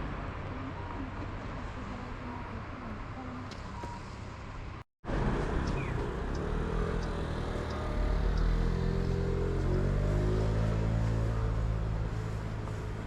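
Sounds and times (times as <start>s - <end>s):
vehicle motor hum rising: 5.1s - 13.0s.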